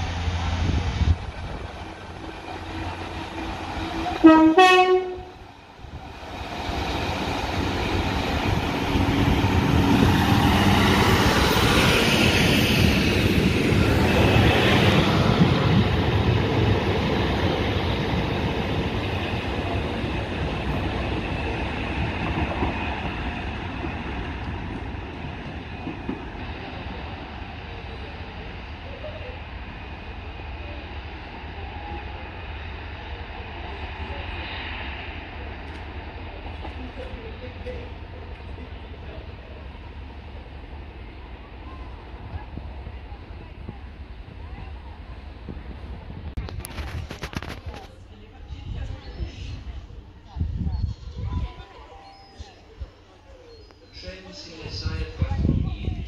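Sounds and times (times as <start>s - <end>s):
diesel train engines and wheels rumbling: 0.0s - 56.0s
two-tone train horn: 4.0s - 5.4s.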